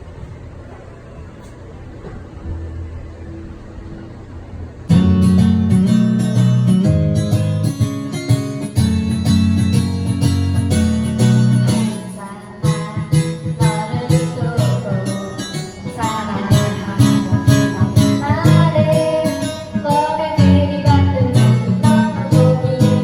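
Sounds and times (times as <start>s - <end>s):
bossa nova music: 4.9s - 23.0s.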